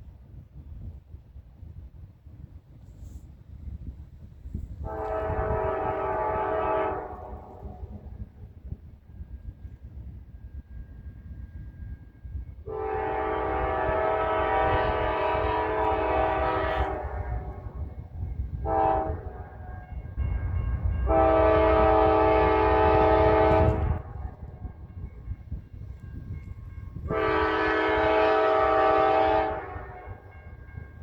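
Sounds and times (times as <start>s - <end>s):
train rumbling: 0.0s - 31.0s
train air horn blasts: 4.8s - 8.4s, 12.6s - 25.1s, 26.9s - 30.8s.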